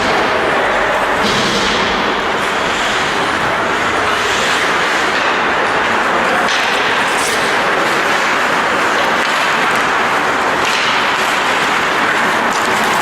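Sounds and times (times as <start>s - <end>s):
loud rushing noise: 0.0s - 13.0s.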